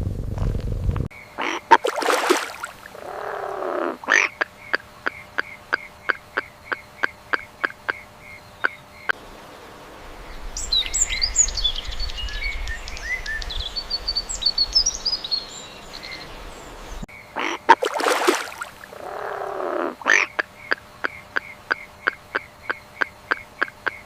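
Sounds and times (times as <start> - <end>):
low rumble: 0.0 - 1.1
low drawn-out animal call: 2.9 - 4.3, 18.9 - 22.5.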